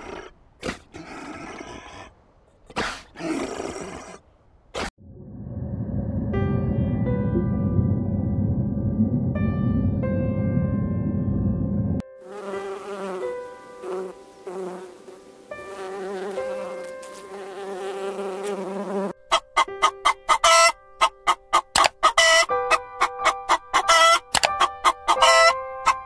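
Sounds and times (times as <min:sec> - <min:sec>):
loud low rumble: 0:05.0 - 0:12.0
soft background music: 0:06.5 - 0:18.3, 0:19.2 - 0:26.0
sharp clicking calls: 0:21.6 - 0:22.2.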